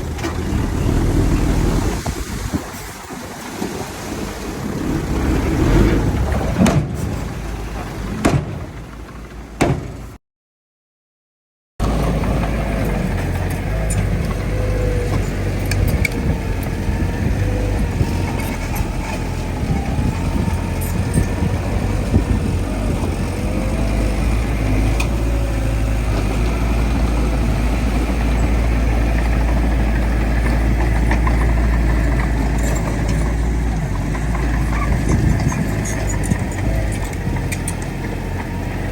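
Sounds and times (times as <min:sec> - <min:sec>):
diesel machinery rumbling: 0:00.0 - 0:10.2, 0:11.8 - 0:38.9
gusty noise with knocks: 0:00.2 - 0:08.9.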